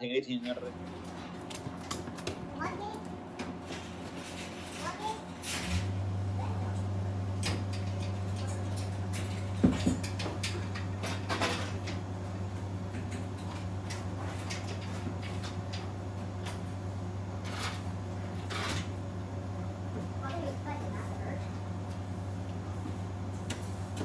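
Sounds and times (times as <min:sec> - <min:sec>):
steady low hum: 0:00.0 - 0:24.0
knocks and clatters: 0:07.4 - 0:12.0.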